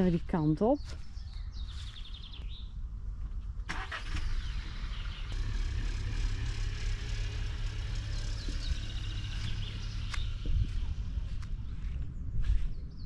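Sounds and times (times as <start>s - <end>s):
car engine starting and idling: 3.6s - 12.0s.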